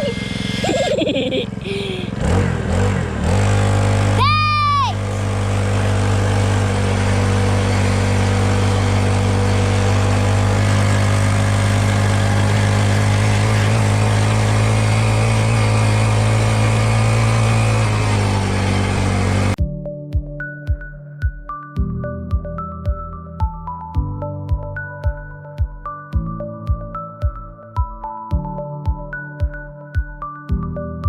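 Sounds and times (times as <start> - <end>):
dirt bike engine running: 0.0 - 19.6.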